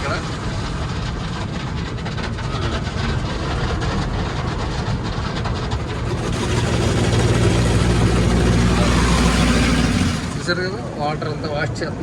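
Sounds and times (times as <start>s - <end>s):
low rumble of wash machinery: 0.0s - 12.0s
water jets spraying on car: 5.7s - 12.0s.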